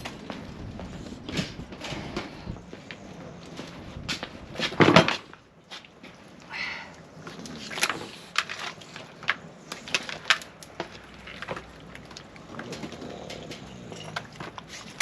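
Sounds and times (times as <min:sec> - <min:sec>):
objects clicking and knocking: 0:07.4 - 0:15.0.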